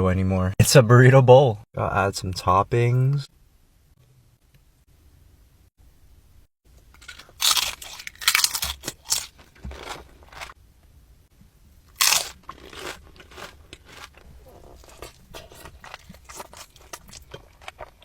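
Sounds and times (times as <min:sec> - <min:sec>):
crunchy food chewing: 0:07.0 - 0:10.6, 0:11.9 - 0:18.0.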